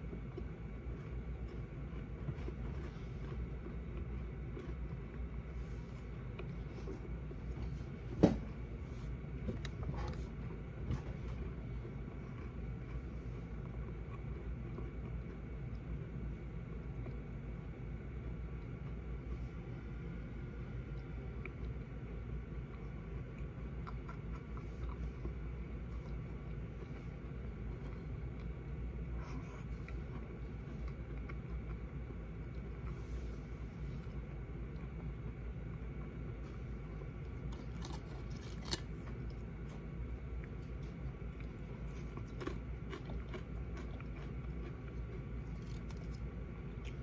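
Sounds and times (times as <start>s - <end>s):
steady low rumble: 0.0s - 47.0s
faint chewing clicks: 19.8s - 33.2s, 36.8s - 47.0s
chips crunching while chewed: 37.2s - 47.0s.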